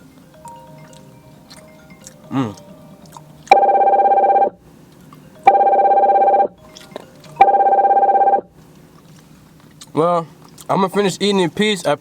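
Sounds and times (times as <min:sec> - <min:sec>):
telephone ringing: 0:03.5 - 0:04.6, 0:05.4 - 0:06.6, 0:07.4 - 0:08.5.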